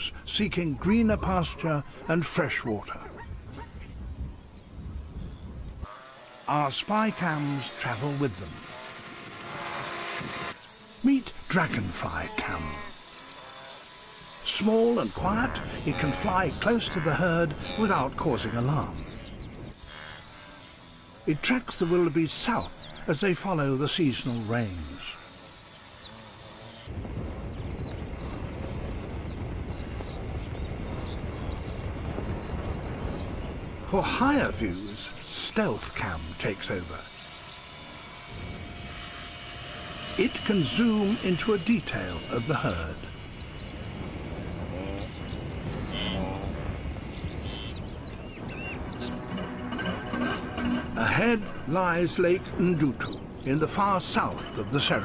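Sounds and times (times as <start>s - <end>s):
hooves trampling dry ground: 27.0s - 36.2s.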